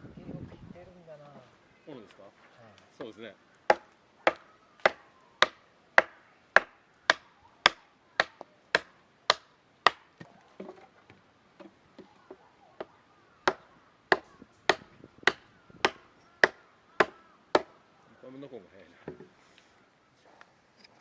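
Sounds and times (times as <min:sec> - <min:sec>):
axe chopping wood: 0:03.7 - 0:10.8, 0:13.5 - 0:17.8.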